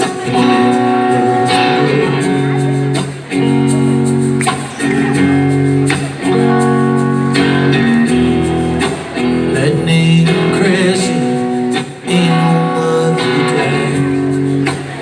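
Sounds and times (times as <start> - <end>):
live rock band playing: 0.0 - 15.0
ringing guitar chords: 0.0 - 15.0.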